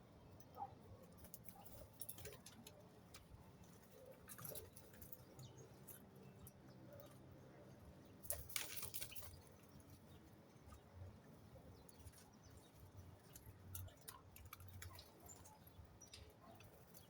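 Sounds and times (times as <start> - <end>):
birds clicking and scratching: 0.3 - 17.0
wings fluttering: 8.2 - 9.5.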